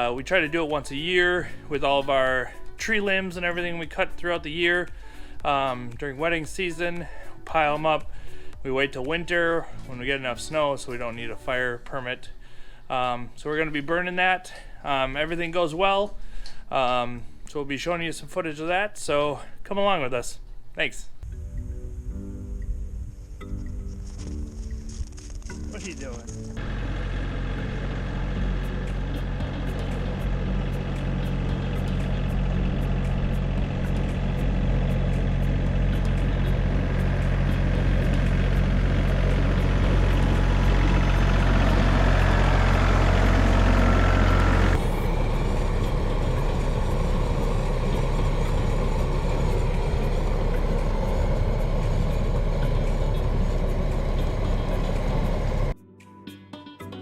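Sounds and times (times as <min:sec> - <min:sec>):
tractor diesel engine running: 0:00.0 - 0:03.5, 0:23.7 - 0:55.8.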